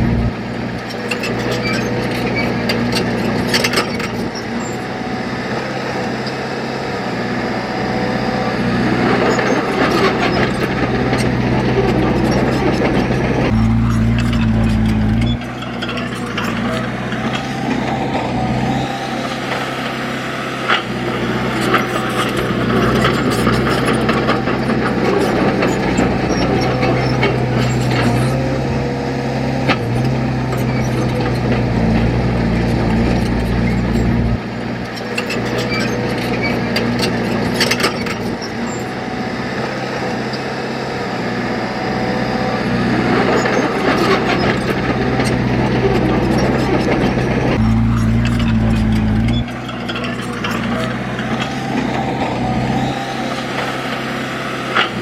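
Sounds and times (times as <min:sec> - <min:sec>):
heavy machinery diesel engine: 0:00.0 - 0:55.0
clanks and knocks: 0:43.3 - 0:52.0.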